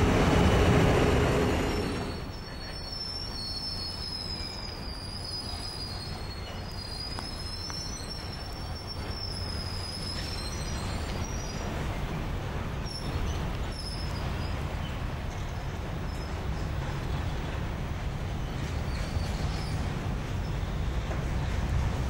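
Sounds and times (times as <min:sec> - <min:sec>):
freight train rumbling past: 0:00.0 - 0:22.0
high-pitched wheel squeals: 0:01.6 - 0:11.6.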